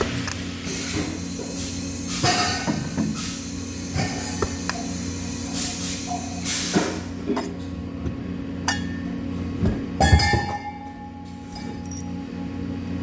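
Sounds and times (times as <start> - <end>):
electrical hum: 0.0 - 13.0
ringing metal tone: 10.0 - 12.8
metal pieces clinking: 11.4 - 12.2.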